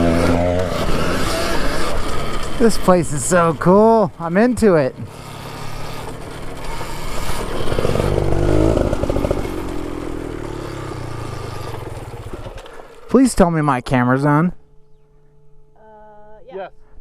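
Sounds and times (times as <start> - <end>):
dirt bike engine passing: 0.0 - 14.3.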